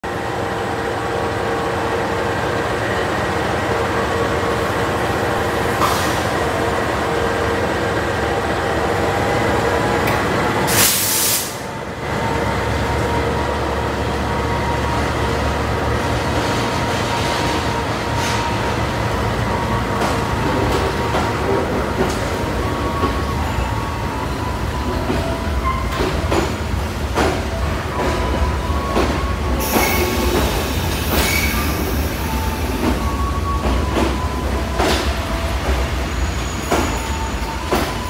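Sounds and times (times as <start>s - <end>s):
short loud hiss: 10.7s - 11.6s.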